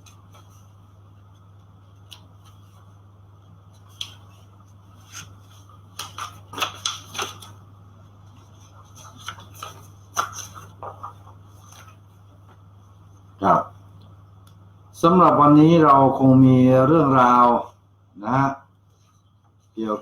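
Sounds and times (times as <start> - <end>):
low electrical hum: 0.0 - 20.0
papers rustling and clicking: 3.8 - 4.4, 5.0 - 7.6, 8.6 - 12.6.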